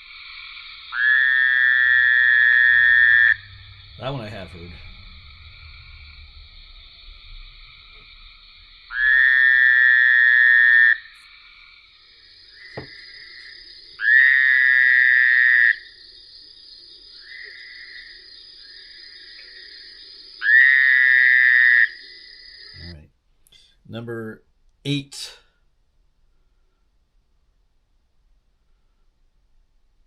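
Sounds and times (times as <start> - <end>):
frog trilled calls: 0.0 - 6.2, 7.5 - 16.2, 16.9 - 23.0
faint frog chorus: 0.0 - 23.8.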